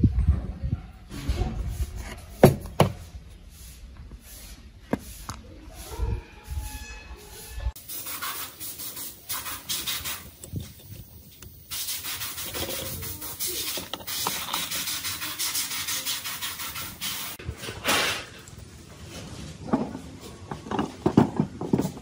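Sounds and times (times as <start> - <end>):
hand sanding strokes: 1.6 - 17.4.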